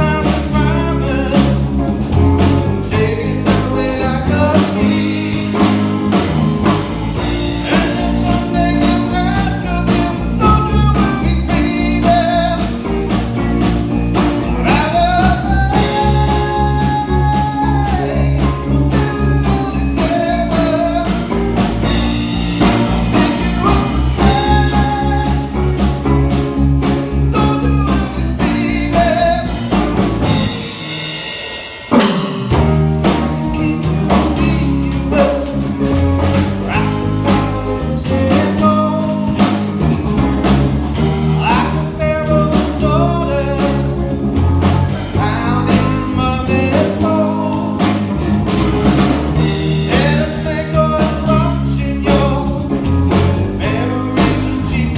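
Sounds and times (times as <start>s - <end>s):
bass guitar: 0.0s - 54.9s
drums playing: 0.0s - 54.9s
electric guitar melody: 0.0s - 54.9s
sharp drum hit: 29.8s - 34.6s.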